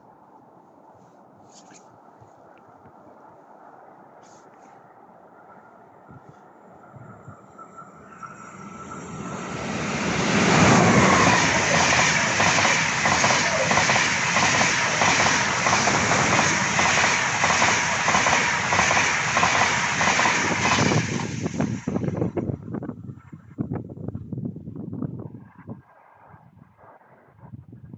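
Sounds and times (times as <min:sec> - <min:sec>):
rhythmic rail clatter: 0:06.8 - 0:22.4
train wheels rushing on rails: 0:07.0 - 0:22.4.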